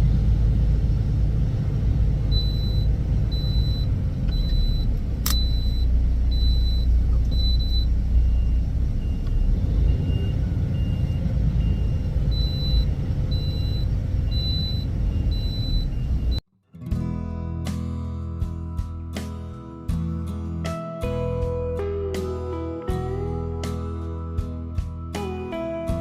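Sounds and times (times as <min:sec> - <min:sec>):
heavy vehicle engine rumble: 0:00.0 - 0:16.4
high-pitched reversing alarm beeps: 0:02.3 - 0:16.4
lower-pitched alarm beeps: 0:02.3 - 0:16.4
sharp click: 0:05.2 - 0:05.5.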